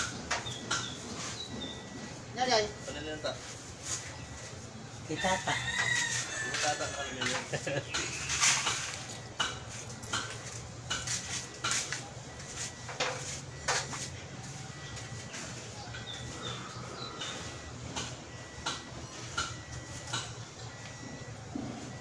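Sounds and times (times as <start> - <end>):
steady low hum: 7.6 - 22.0.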